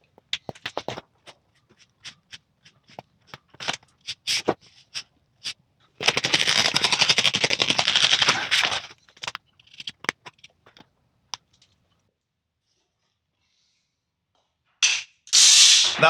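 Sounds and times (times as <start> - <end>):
sharp crackling clicks: 0.0 - 11.6
taps of materials being handled: 0.0 - 11.7.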